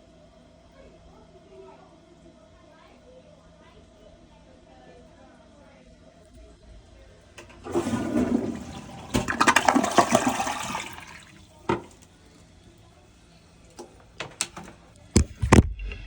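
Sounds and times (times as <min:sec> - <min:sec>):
toilet flushing: 0:07.4 - 0:12.1.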